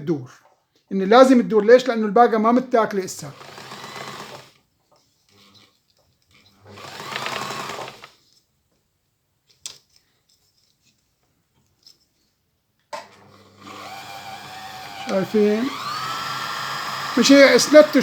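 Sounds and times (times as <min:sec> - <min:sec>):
sewing machine motor running: 0:03.3 - 0:04.6, 0:06.6 - 0:08.2, 0:13.0 - 0:18.0.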